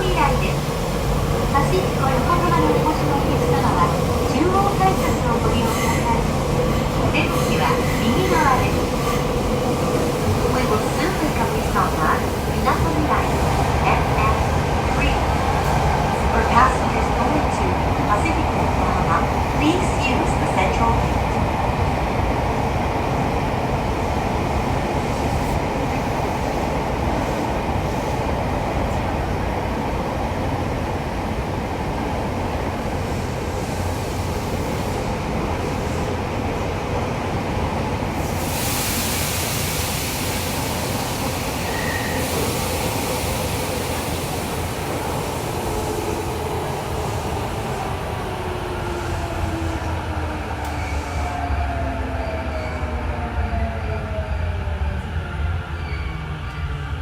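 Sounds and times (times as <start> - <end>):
train wheels rumbling on rail: 0.0 - 57.0
train hiss: 33.5 - 36.2, 38.0 - 49.8.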